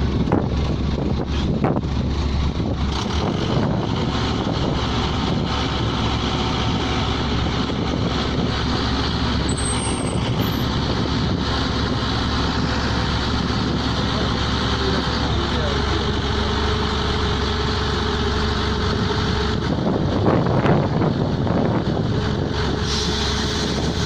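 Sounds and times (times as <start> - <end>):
pneumatic drilling rig running: 0.0 - 24.0.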